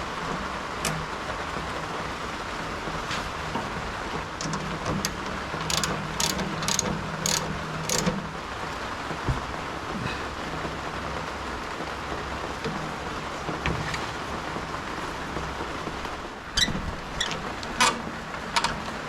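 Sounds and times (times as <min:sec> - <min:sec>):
sharp metallic clicks: 0:05.0 - 0:08.2.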